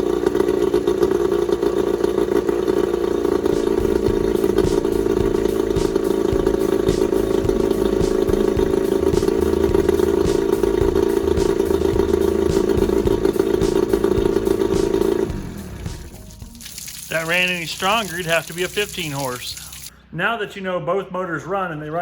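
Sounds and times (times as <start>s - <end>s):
outboard motor idling: 0.0s - 19.9s.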